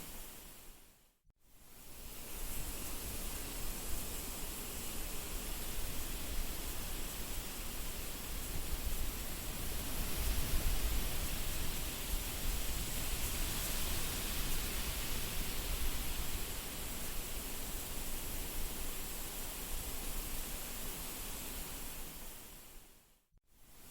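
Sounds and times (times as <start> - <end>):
wind blowing in gusts: 7.2 - 22.7.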